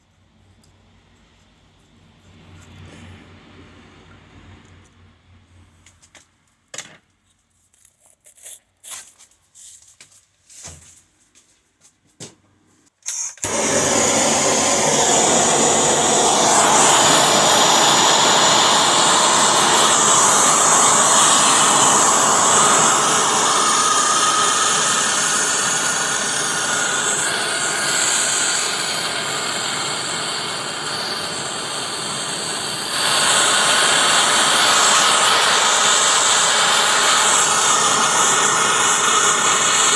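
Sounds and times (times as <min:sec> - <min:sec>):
gas torch hissing: 0:13.1 - 0:39.9.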